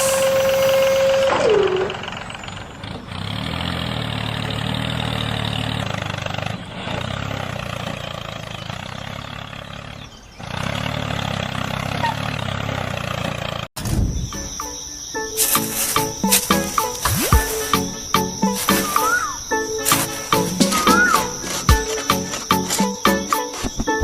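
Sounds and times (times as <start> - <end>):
motor humming and rattling: 15.6 - 24.0.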